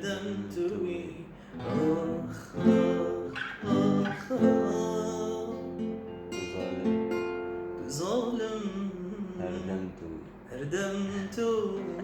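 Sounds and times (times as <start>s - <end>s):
plucked string instrument melody: 1.6s - 7.9s.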